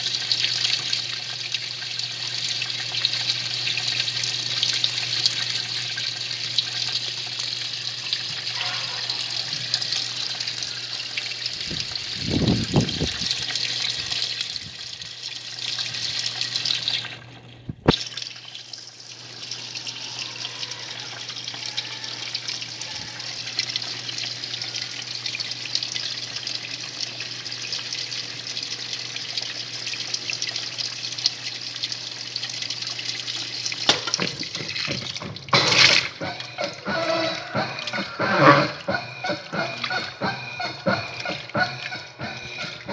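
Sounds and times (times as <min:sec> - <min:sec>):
washing machine water churning: 0:00.0 - 0:42.9
washing machine motor hum: 0:33.0 - 0:42.9.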